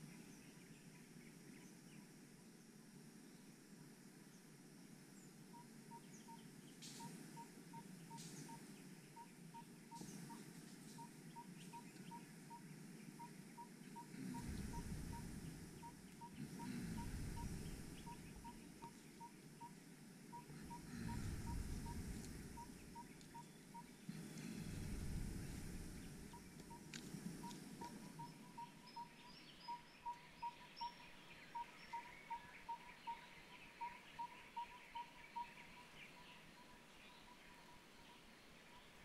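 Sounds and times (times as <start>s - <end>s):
bird piping: 5.5s - 39.0s
low rumbles: 14.2s - 18.8s, 20.5s - 23.3s, 24.1s - 28.3s.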